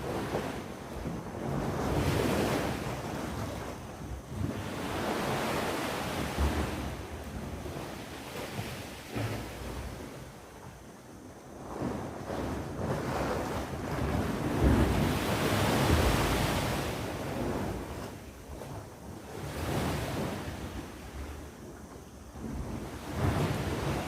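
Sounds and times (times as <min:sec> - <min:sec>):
sea waves breaking on shore: 0:00.0 - 0:10.6, 0:11.5 - 0:21.5, 0:22.3 - 0:24.0
wind buffeting microphone: 0:00.0 - 0:24.0.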